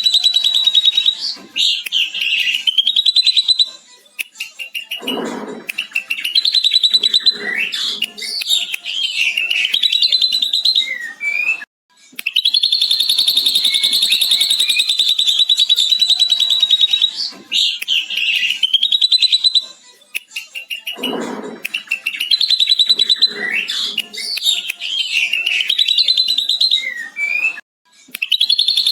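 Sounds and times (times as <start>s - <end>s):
bird whistled notes: 4.6s - 11.6s, 12.3s - 19.7s, 20.6s - 27.6s, 28.2s - 28.9s.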